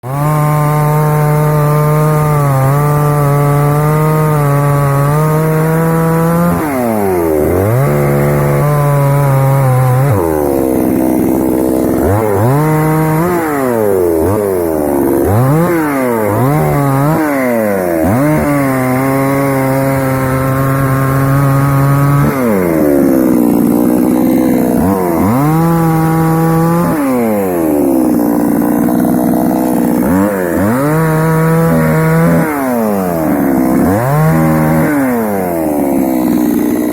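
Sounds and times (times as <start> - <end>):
chainsaw engine revving: 0.0 - 36.9.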